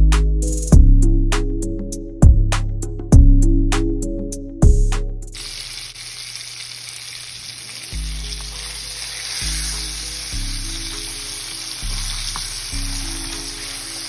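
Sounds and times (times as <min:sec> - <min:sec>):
chicken frying in oil: 0:05.4 - 0:14.0.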